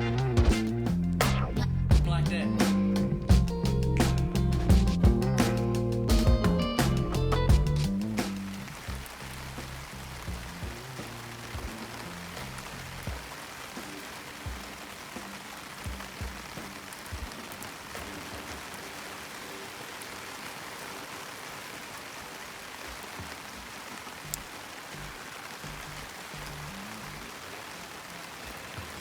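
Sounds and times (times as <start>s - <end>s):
soft background music: 0.0s - 9.1s
rain pattering: 0.0s - 29.0s.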